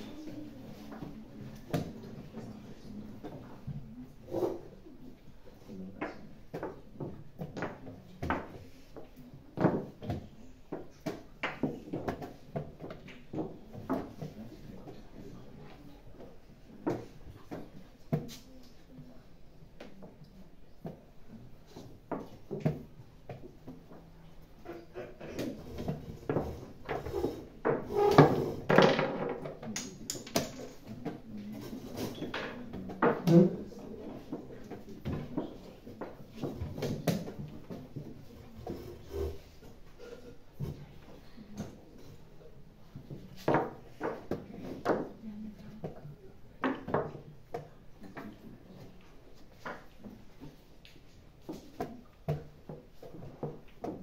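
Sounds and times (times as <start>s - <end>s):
chess pieces set on boards: 28.8s - 30.9s.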